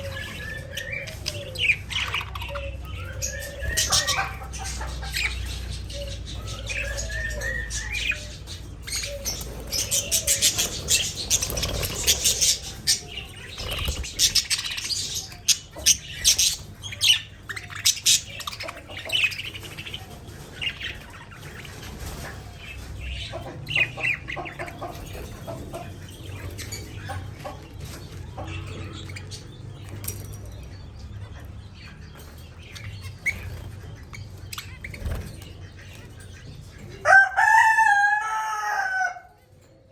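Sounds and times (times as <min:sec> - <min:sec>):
budgerigars chirping: 0:00.0 - 0:37.0
wings fluttering: 0:09.1 - 0:14.9.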